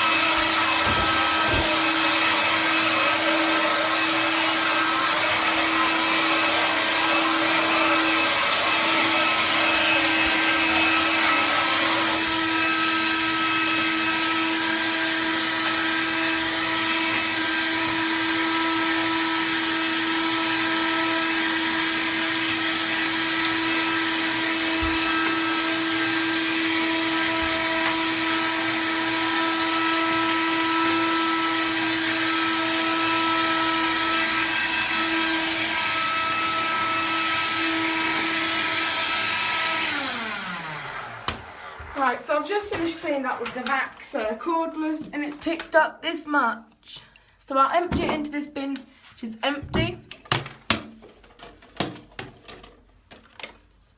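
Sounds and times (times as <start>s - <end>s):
cordless vacuum running: 0.0s - 44.3s.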